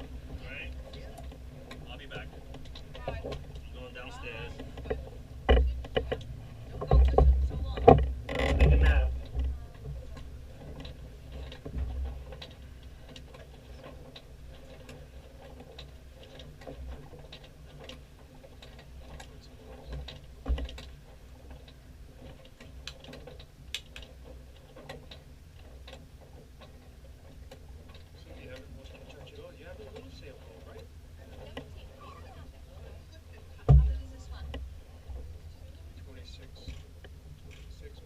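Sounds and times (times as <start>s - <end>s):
steady low rumble: 0.0s - 15.3s, 26.8s - 38.0s
boat clicks and creaks: 0.0s - 38.0s.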